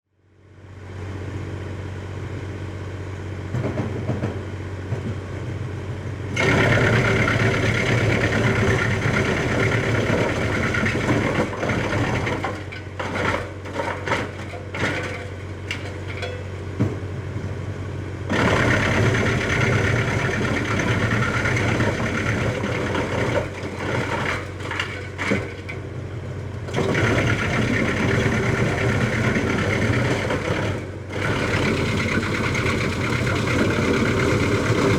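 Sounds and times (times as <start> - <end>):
wood chipper chipping wood: 6.3 - 17.6, 18.2 - 34.9
tractor engine hum: 25.8 - 34.9.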